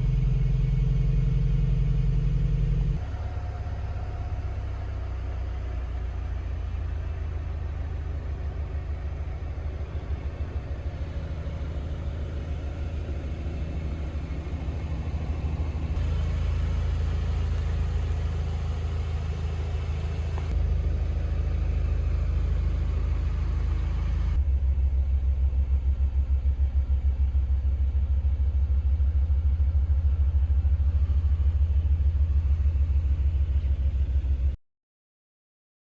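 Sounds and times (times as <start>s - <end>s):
car engine low drone: 0.0s - 34.6s.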